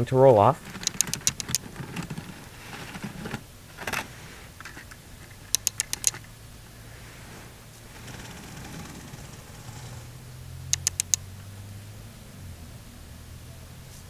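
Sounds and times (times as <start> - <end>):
plastic parts clicking: 0.5 - 6.3, 10.7 - 11.2
short plastic scrape: 0.6 - 10.1.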